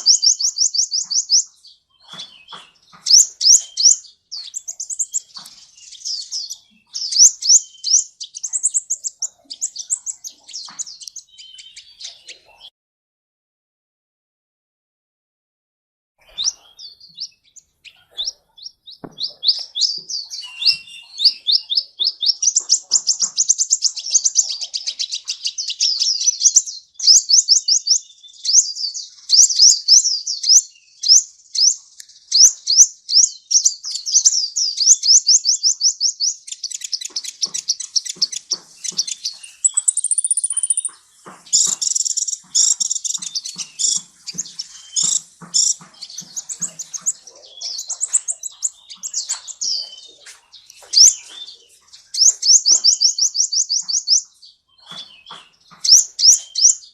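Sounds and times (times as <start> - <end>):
bird chirping and trilling: 0.0 - 12.7, 16.2 - 56.9.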